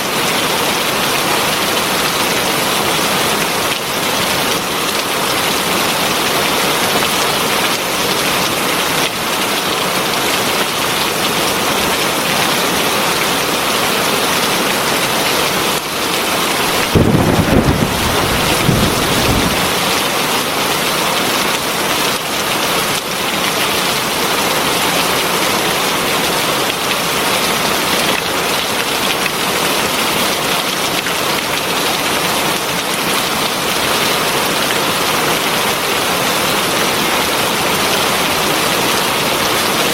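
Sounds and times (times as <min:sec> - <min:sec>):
heavy rain falling: 0:00.0 - 0:39.9
thunder rumble: 0:16.7 - 0:20.0.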